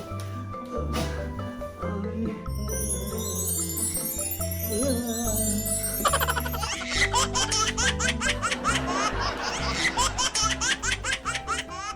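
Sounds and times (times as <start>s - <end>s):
rapid high-pitched laughter: 6.0s - 11.9s.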